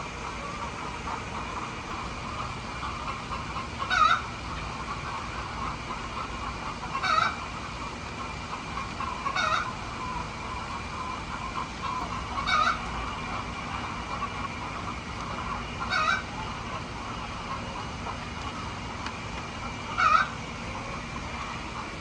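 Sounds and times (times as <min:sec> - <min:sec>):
hens clucking: 0:00.0 - 0:22.0
loud sharp hen call: 0:03.8 - 0:04.3, 0:06.9 - 0:07.4, 0:09.2 - 0:10.2, 0:11.0 - 0:13.0, 0:15.8 - 0:16.3, 0:19.9 - 0:20.4.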